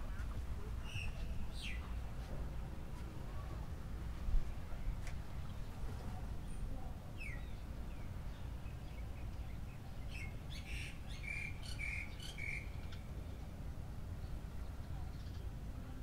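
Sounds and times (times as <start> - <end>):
small birds chirping: 7.2 - 13.3, 14.2 - 15.6.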